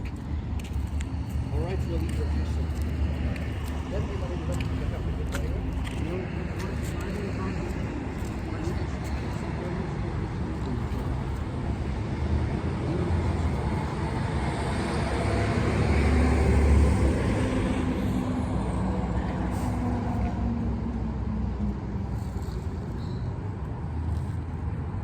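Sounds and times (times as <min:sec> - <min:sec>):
motor vehicle passing by: 0:10.9 - 0:23.3.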